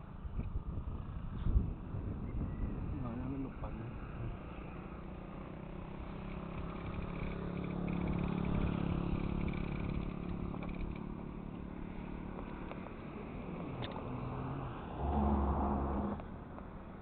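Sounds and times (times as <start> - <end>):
vehicle engine passing: 6.2 - 17.0.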